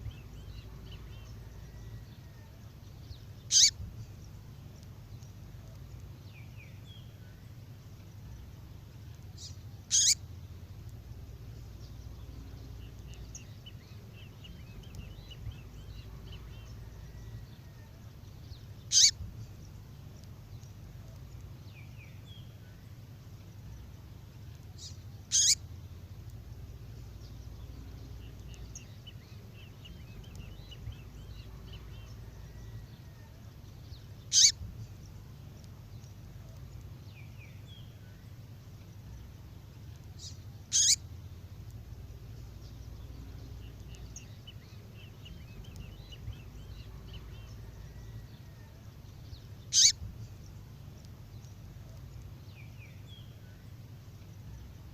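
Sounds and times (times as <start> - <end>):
faint twittering trills: 0.0 - 54.9
low steady hum: 0.0 - 54.9
songbird sharp call: 3.5 - 3.8, 9.9 - 10.2, 18.9 - 19.2, 25.3 - 25.6, 34.3 - 34.6, 40.7 - 41.0, 49.7 - 50.0.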